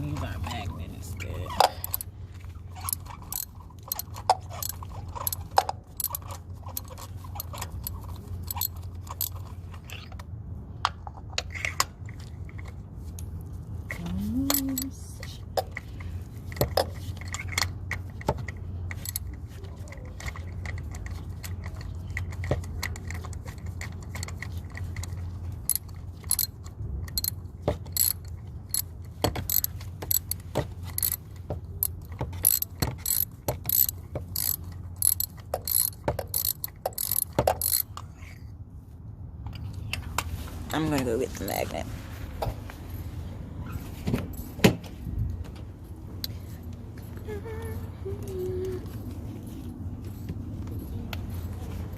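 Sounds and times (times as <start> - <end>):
ratchet wrench clicking: 1.6 - 2.1, 2.7 - 9.5, 14.5 - 14.9, 18.9 - 19.4, 20.3 - 37.9.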